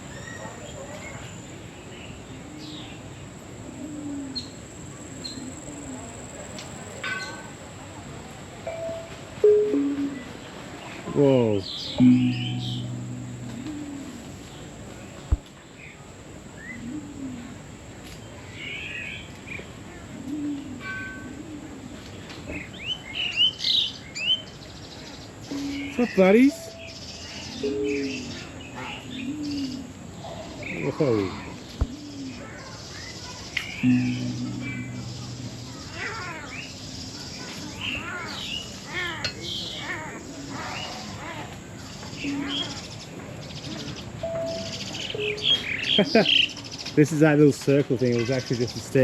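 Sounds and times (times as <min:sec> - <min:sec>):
low drawn-out tones: 0:12.0 - 0:14.4, 0:33.8 - 0:37.8
thin high-pitched whine: 0:12.0 - 0:14.4, 0:33.8 - 0:38.3
birds calling softly: 0:20.3 - 0:47.2.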